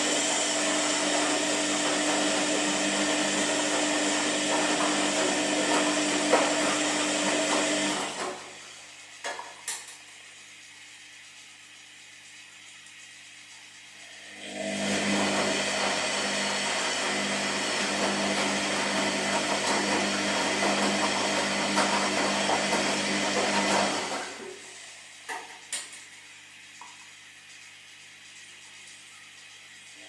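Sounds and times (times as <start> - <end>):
washing machine drum turning: 0.6 - 8.5, 15.0 - 24.4.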